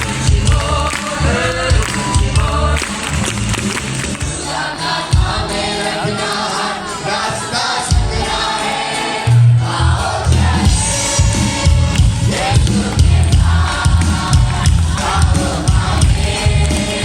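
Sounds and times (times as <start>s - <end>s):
heavy bass beat: 0.0s - 4.4s, 10.3s - 17.0s
band playing: 0.0s - 17.0s
voices singing together: 0.0s - 17.0s.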